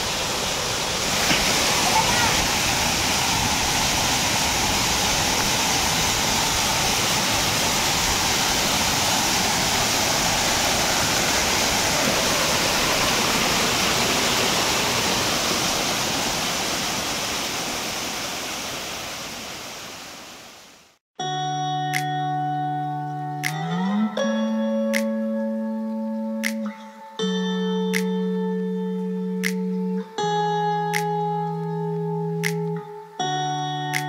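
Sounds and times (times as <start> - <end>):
water rushing over rock: 0.0 - 20.7.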